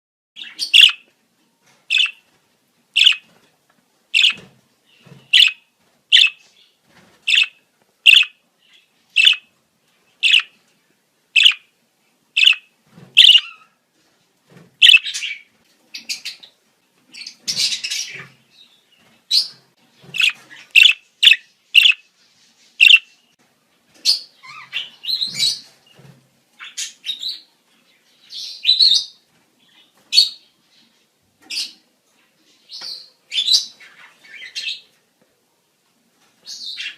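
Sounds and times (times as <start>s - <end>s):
budgerigars chirping and warbling: 0.4s - 1.1s, 1.9s - 2.3s, 3.0s - 3.3s, 4.2s - 9.5s, 10.2s - 10.6s, 11.4s - 11.7s, 12.4s - 13.7s, 14.8s - 16.5s, 17.2s - 18.5s, 19.3s - 22.1s, 22.7s - 23.2s, 24.0s - 25.7s, 26.6s - 27.5s, 32.8s - 34.9s.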